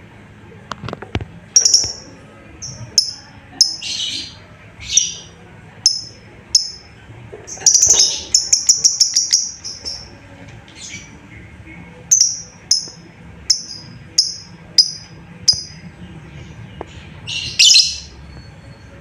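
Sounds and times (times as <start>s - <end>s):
lovebird rasping calls: 1.6s - 5.2s, 5.8s - 6.8s, 7.5s - 10.1s, 12.1s - 15.8s, 17.3s - 18.1s
lovebird chirping: 1.6s - 6.8s, 7.5s - 10.1s, 12.1s - 15.8s, 17.2s - 18.9s.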